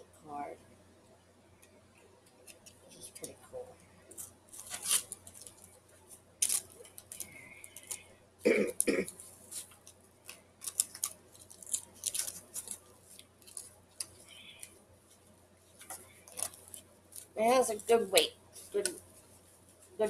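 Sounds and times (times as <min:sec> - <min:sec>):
packaging rustling and crinkling: 0:04.1 - 0:05.8, 0:06.4 - 0:08.0, 0:09.1 - 0:14.2, 0:15.8 - 0:17.4
cough-like burst: 0:08.5 - 0:09.1.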